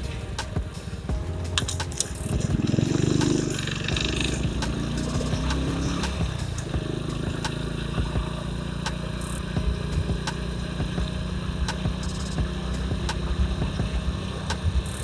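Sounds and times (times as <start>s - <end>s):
motorcycle engine running: 0.0s - 15.0s
irregular clicks and knocks: 0.4s - 2.6s.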